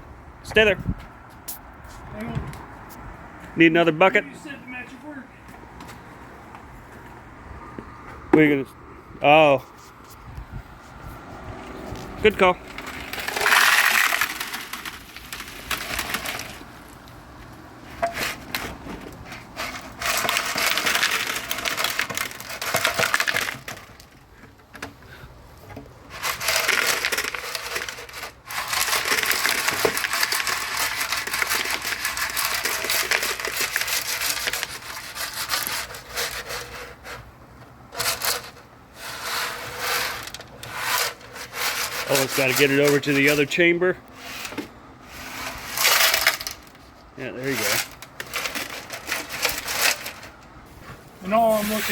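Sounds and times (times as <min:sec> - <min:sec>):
nuts rattling inside metal tank: 0:12.5 - 0:25.2, 0:26.1 - 0:37.3, 0:37.9 - 0:43.6, 0:45.1 - 0:50.4.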